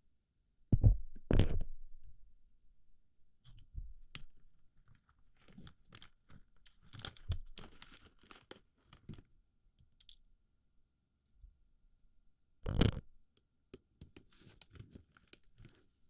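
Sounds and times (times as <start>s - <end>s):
plastic pellets crackling on microphone: 12.6s - 13.1s.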